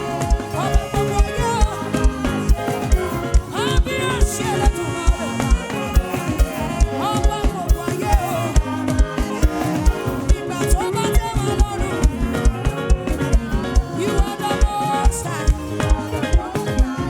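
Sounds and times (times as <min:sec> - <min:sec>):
live band playing gospel music: 0:00.0 - 0:17.0.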